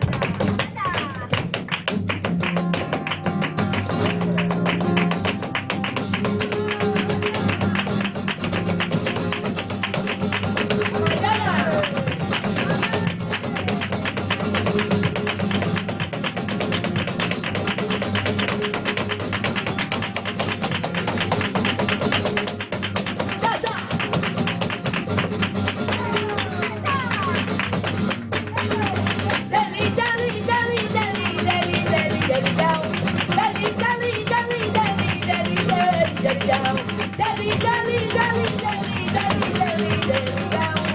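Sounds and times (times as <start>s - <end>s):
flamenco guitar playing: 0.0s - 40.9s
person singing: 6.4s - 8.0s.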